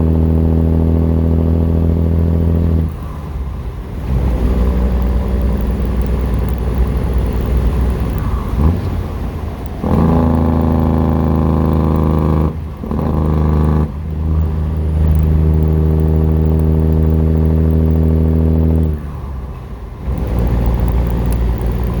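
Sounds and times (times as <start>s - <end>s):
diesel truck engine running: 0.0s - 22.0s
turbo whine: 4.0s - 19.1s, 20.0s - 22.0s.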